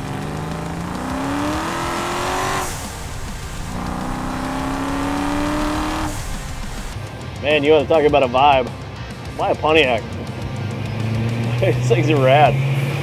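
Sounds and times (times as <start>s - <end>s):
engine accelerating hard: 0.0s - 7.0s, 9.9s - 13.0s.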